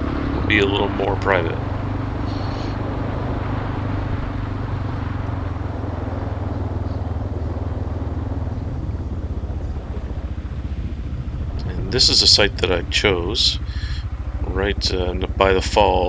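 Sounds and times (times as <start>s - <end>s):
motorcycle engine running: 0.0s - 16.0s
steady hiss: 10.2s - 16.0s.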